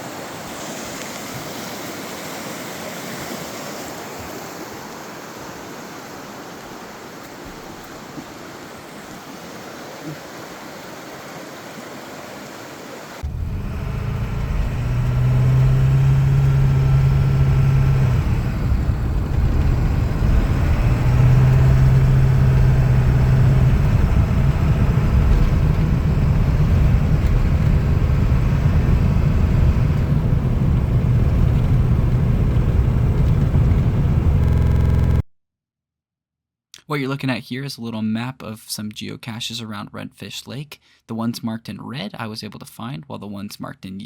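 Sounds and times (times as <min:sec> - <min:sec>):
road noise: 0:13.2 - 0:35.2
vehicle engine rumble: 0:13.2 - 0:35.2.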